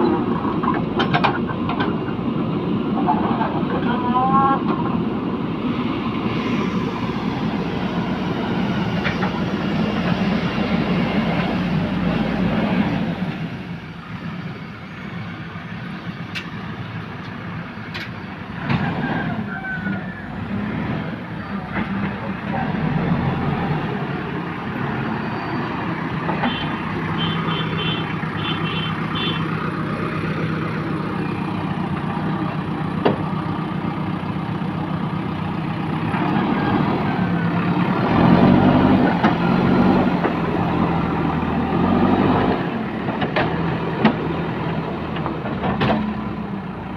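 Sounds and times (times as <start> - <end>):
diesel engine running: 0.0 - 46.9
knocks and clanks: 0.4 - 2.1, 45.1 - 46.2.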